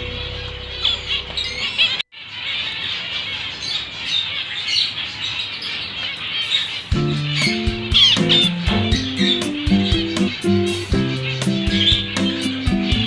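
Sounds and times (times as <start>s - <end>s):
music: 0.0s - 1.5s, 6.9s - 13.0s
small birds chirping and squawking: 0.0s - 13.0s.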